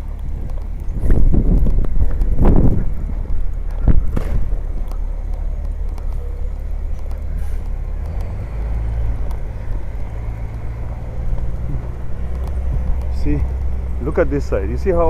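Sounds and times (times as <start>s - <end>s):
vehicle engine rumbling: 0.0s - 15.0s
sharp knock: 4.0s - 4.6s.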